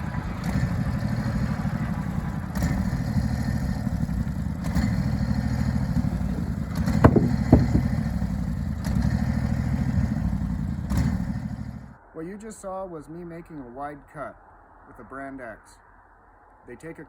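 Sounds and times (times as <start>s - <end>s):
sawmill engine running: 0.0s - 12.0s
sharp knocks: 6.7s - 8.4s.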